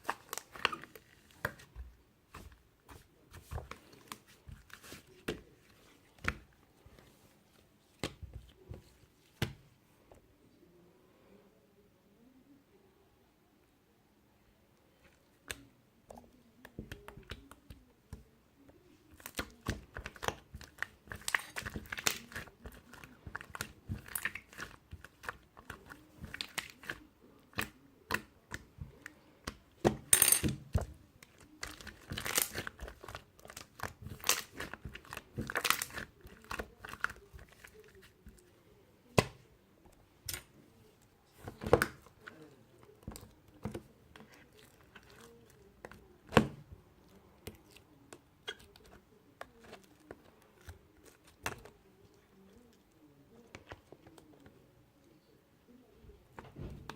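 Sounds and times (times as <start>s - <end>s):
slime crackling and popping: 19.2s - 28.6s, 31.2s - 37.6s.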